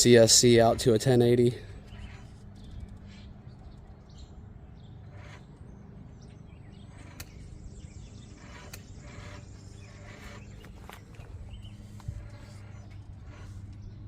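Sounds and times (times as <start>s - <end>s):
low background rumble: 0.0s - 14.0s
tyres scraping on rocks: 1.8s - 3.3s, 6.6s - 14.0s
sharp clicks: 7.0s - 7.5s.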